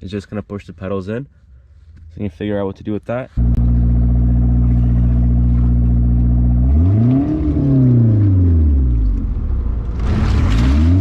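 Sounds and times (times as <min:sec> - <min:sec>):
car engine idling and revving: 0:03.4 - 0:11.0.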